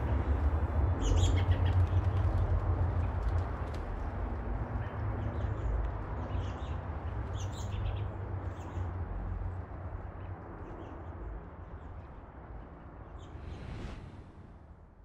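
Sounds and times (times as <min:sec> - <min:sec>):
small birds chirping: 0:04.8 - 0:09.0
wind rumbling on microphone: 0:13.0 - 0:15.0.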